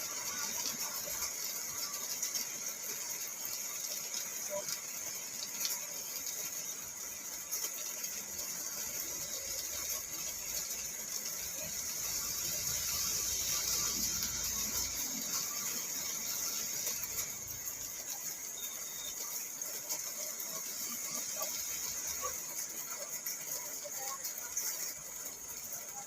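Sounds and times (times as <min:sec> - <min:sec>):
rain on car roof: 0:00.0 - 0:26.0.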